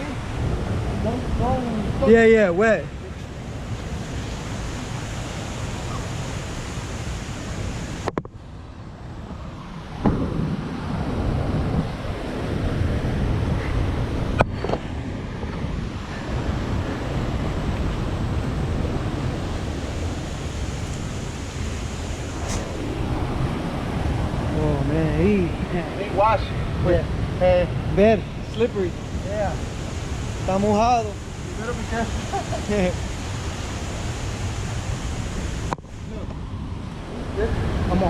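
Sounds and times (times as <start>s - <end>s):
waterfall rushing: 0.0s - 8.1s, 16.2s - 36.2s
wind buffeting microphone: 0.0s - 38.0s.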